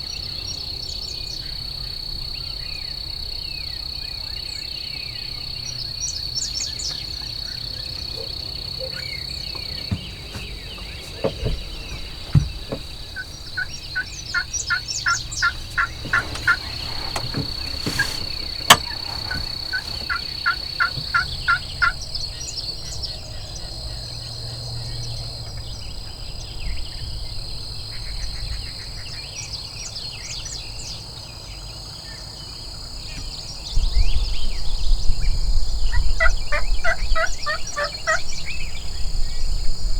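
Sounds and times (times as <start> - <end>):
turkey yelps: 11.0 - 22.0.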